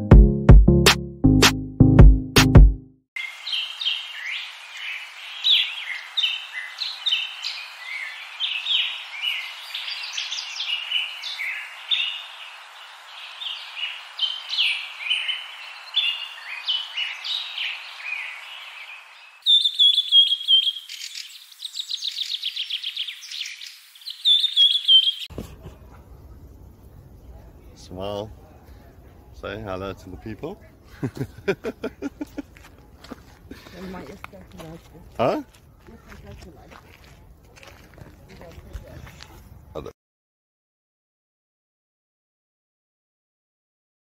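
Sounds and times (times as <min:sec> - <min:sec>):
birds chirping and singing: 0:03.2 - 0:25.3
whistled bird notes and trill: 0:03.2 - 0:25.3.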